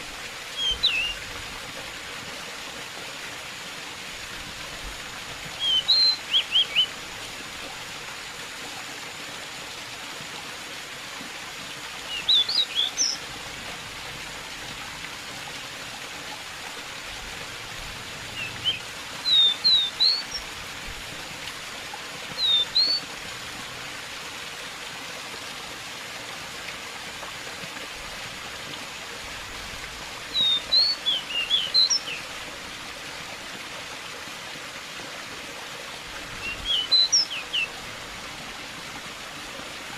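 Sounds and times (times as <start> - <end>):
running water: 0.0 - 39.9
bird chirping song: 0.6 - 1.2, 5.6 - 6.9, 12.1 - 13.2, 18.4 - 20.4, 22.4 - 23.0, 30.3 - 32.2, 36.4 - 37.7.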